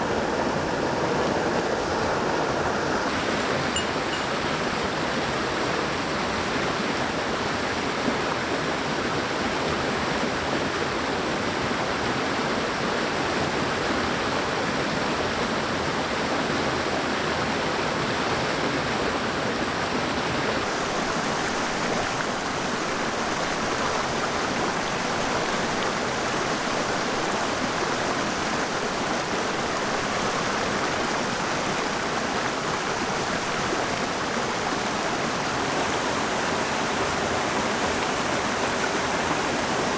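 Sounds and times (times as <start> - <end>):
mountain stream rushing: 19.2 - 39.9.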